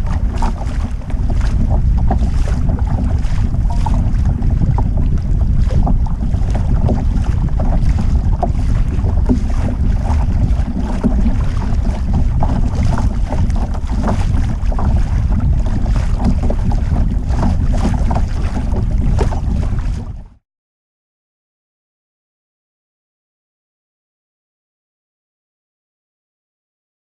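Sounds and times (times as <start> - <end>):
water splashing against hull: 0.0 - 20.4
wind buffeting microphone: 0.0 - 20.4.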